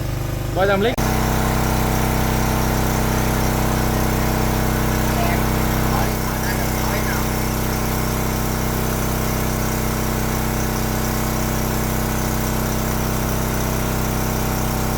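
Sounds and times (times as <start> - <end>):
drone propellers humming: 1.0 - 8.5.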